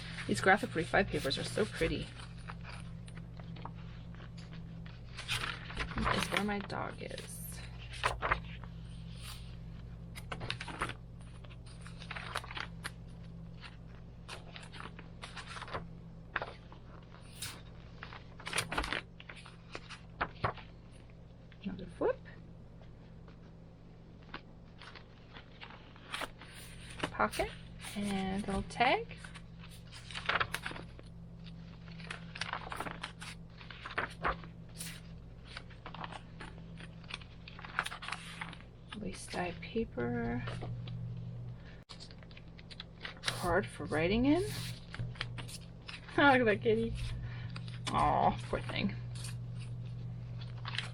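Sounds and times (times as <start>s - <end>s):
paper pages rustling: 0.0s - 21.6s, 22.8s - 50.9s
steady low hum: 0.0s - 50.9s
low hum: 26.6s - 50.9s.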